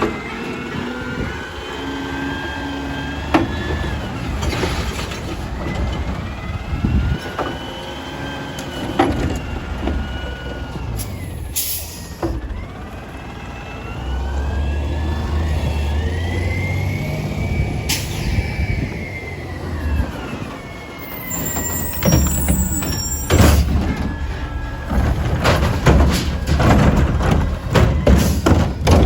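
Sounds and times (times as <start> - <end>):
garbage truck engine revving: 0.0 - 29.0
hydraulic whine: 13.5 - 29.0
metal clanks and bangs: 21.3 - 29.0.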